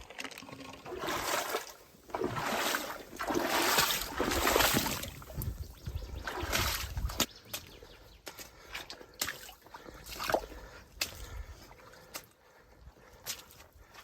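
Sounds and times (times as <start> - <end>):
paddle swishing and splashing water: 0.1 - 5.5.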